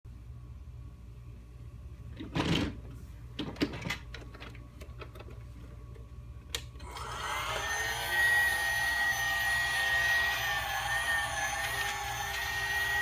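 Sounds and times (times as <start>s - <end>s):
small electric motor whining: 6.8s - 13.0s.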